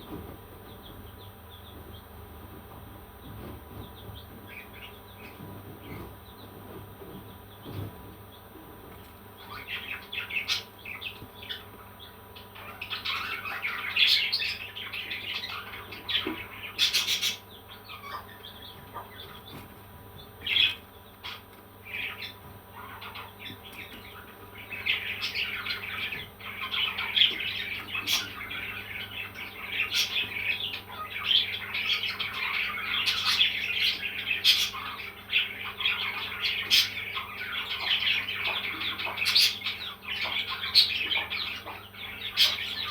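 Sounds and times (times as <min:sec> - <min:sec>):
parrots chirping and squawking: 0:09.3 - 0:42.9.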